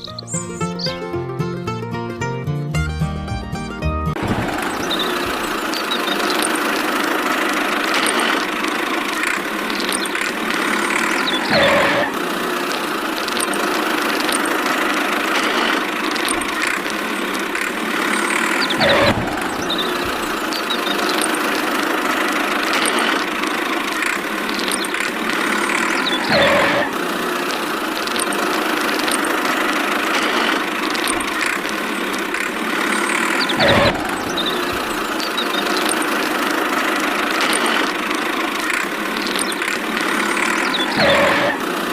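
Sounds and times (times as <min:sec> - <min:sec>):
motor idling with swooping sound: 0:04.2 - 0:41.9.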